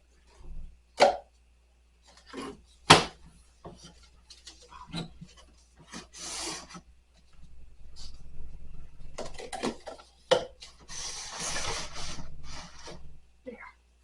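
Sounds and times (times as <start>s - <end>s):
scrape or rustle: 3.7s - 6.8s, 10.6s - 13.1s.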